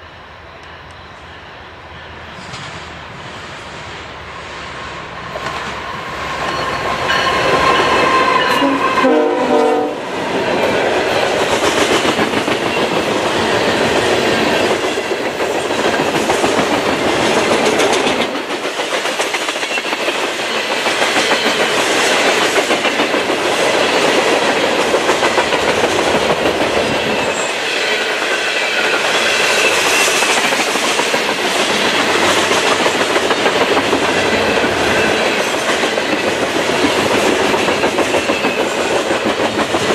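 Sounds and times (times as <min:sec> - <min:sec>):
train cars rumbling past: 0:00.0 - 0:39.9
train horn: 0:07.1 - 0:10.1.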